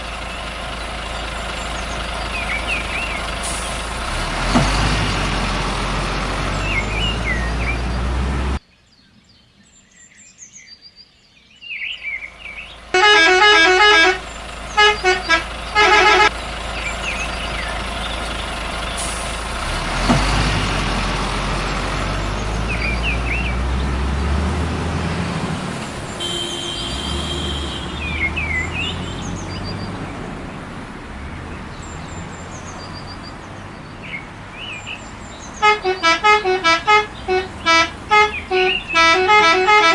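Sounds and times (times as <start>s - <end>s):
truck engine running: 0.0s - 8.6s, 12.3s - 39.9s
bird-like chirps: 0.1s - 3.9s, 6.4s - 8.1s, 16.7s - 19.2s, 21.6s - 24.0s, 25.8s - 39.2s
truck horn honking: 1.3s - 8.6s, 12.9s - 17.7s, 19.0s - 39.9s.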